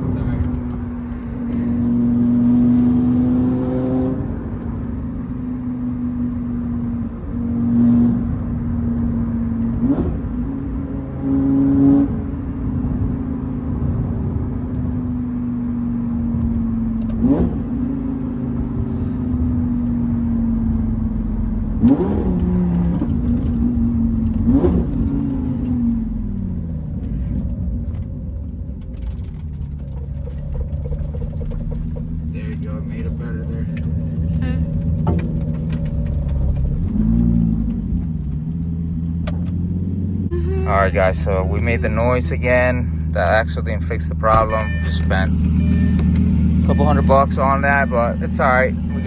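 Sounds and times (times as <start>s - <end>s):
sports car engine droning: 0.0s - 49.0s.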